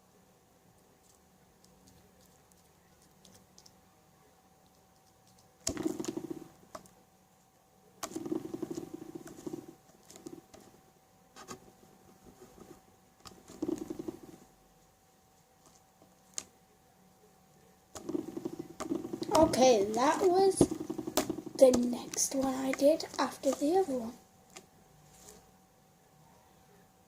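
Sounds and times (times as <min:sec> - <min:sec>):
slime squelching: 0:18.0 - 0:24.2.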